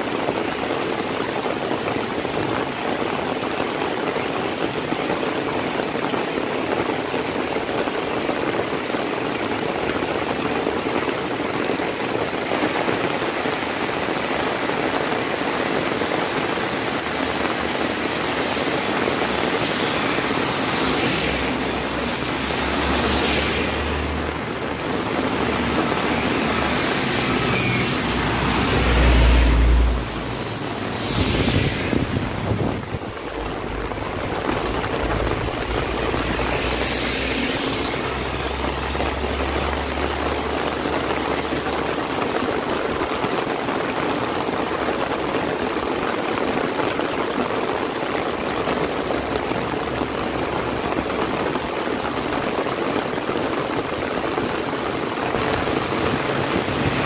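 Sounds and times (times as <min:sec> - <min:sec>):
heavy rain falling: 0:00.0 - 0:57.0
vehicles passing on wet road: 0:00.0 - 0:57.0.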